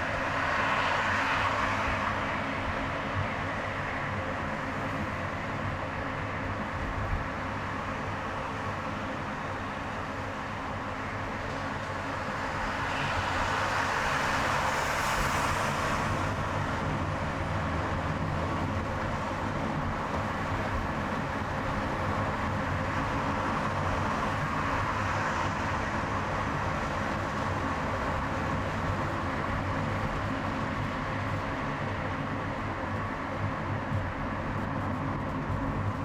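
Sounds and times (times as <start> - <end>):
passing traffic: 0.0 - 36.0
tyre and road noise: 0.0 - 36.0
car engine hum: 10.1 - 36.0.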